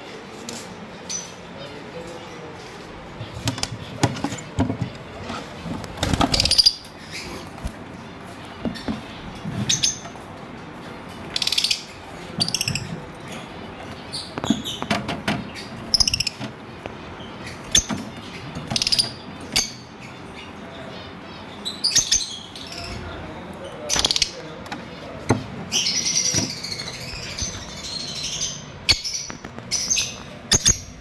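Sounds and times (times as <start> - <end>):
birds chirping shrilly: 2.6 - 31.0.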